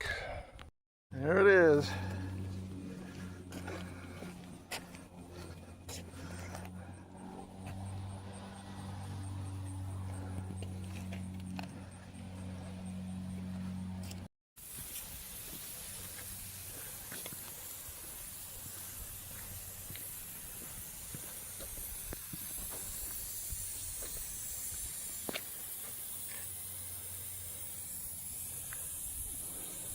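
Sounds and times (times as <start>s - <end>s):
sprinkler spraying water: 14.0s - 29.9s.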